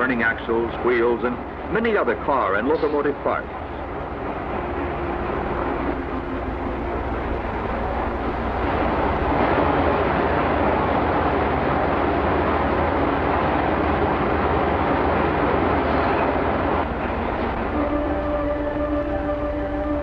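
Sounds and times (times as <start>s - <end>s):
machinery rumbling and hissing: 0.0s - 20.0s.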